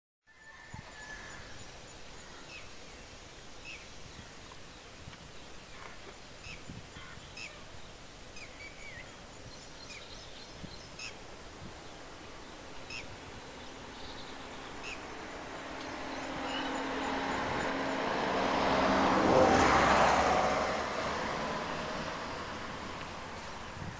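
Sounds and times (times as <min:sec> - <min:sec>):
outdoor background noise: 0:00.2 - 0:23.9
small birds chirping: 0:01.4 - 0:19.2
road vehicle approaching: 0:09.9 - 0:23.9.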